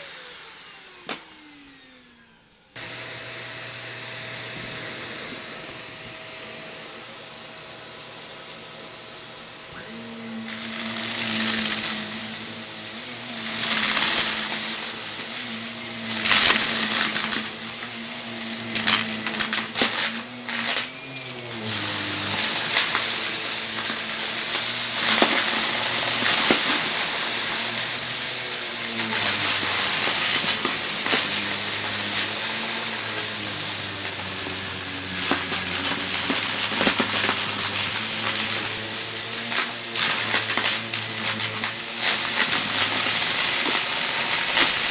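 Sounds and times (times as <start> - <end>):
vacuum cleaner motor: 0.0 - 44.9
debris rattling inside vacuum: 10.1 - 44.9.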